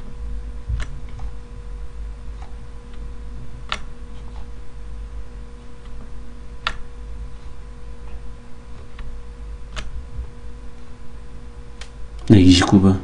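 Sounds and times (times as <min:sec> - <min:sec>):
low electrical hum: 0:00.0 - 0:13.0
computer mouse clicks: 0:03.6 - 0:04.5, 0:06.6 - 0:06.9, 0:09.7 - 0:10.0.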